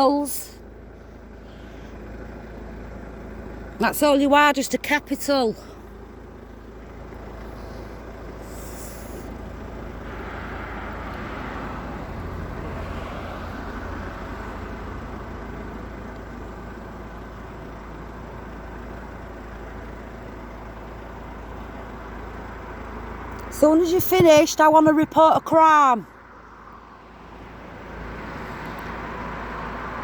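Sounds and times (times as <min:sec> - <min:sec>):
road traffic noise: 0:00.0 - 0:30.0
vehicle passing: 0:07.4 - 0:15.4.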